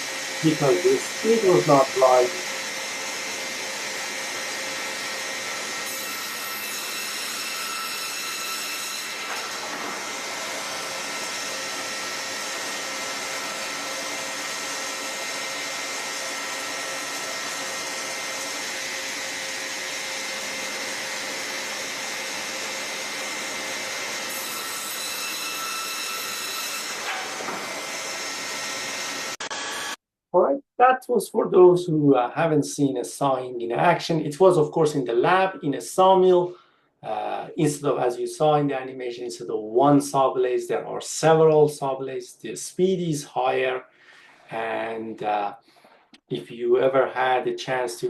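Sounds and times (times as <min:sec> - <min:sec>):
high-pitched saw whine: 0:00.0 - 0:30.0
saw cutting wood whirring: 0:00.0 - 0:30.0.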